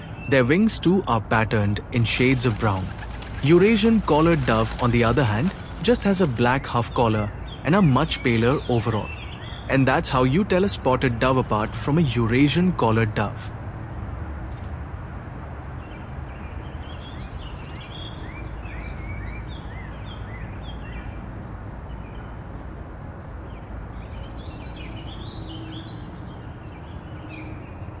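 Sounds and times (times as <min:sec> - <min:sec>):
small birds chirping: 0:00.0 - 0:13.6, 0:23.4 - 0:27.9
low outdoor rumble: 0:00.3 - 0:09.1.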